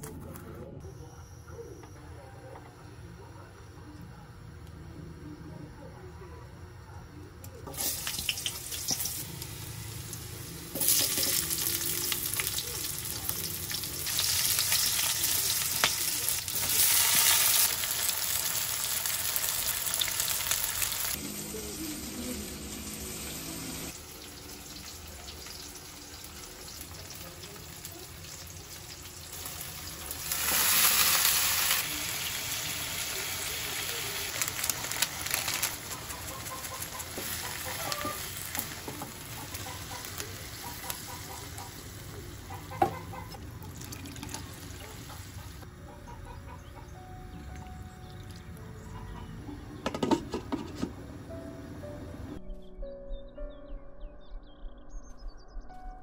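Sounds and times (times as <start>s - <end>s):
food sizzling in hot oil: 7.7s - 41.9s.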